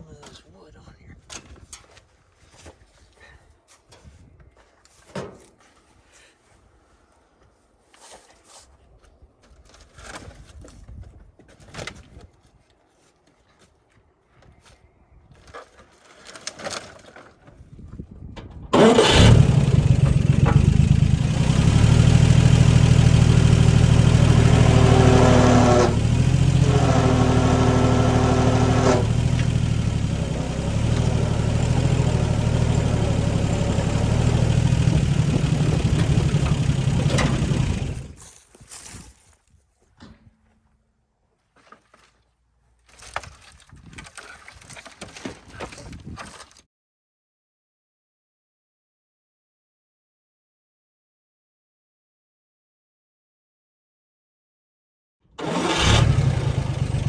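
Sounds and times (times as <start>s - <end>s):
engine running: 18.8s - 38.2s, 55.4s - 57.0s.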